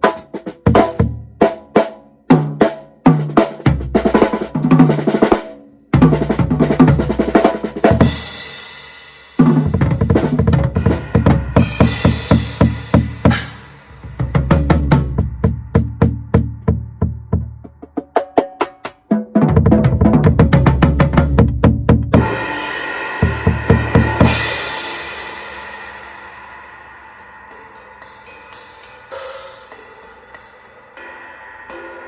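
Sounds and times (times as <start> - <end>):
drum kit playing: 0.0 - 32.0
cymbal crash: 7.9 - 9.8, 10.8 - 14.5, 22.2 - 32.0.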